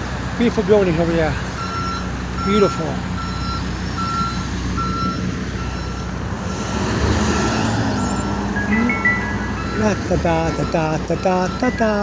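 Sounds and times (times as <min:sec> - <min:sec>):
traffic noise: 0:00.0 - 0:12.0
truck engine running: 0:00.0 - 0:12.0
reversing alarm beeping: 0:01.6 - 0:06.1, 0:07.2 - 0:12.0.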